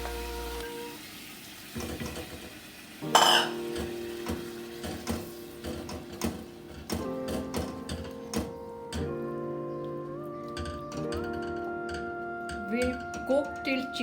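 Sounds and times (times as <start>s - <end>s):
utensil scraping a pan: 3.2s - 3.7s
loud metallic clang: 3.2s - 3.8s.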